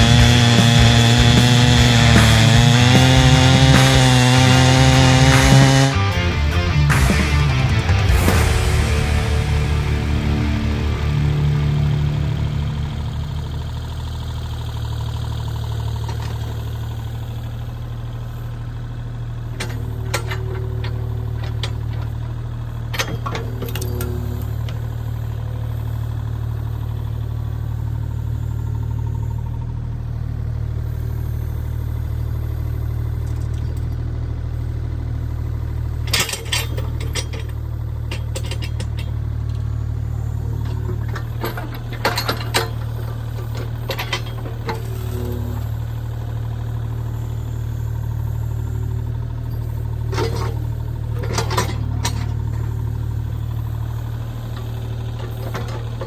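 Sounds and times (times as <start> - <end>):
sharp cracks and knocks: 0.0 - 11.0
engine idling: 0.0 - 56.0.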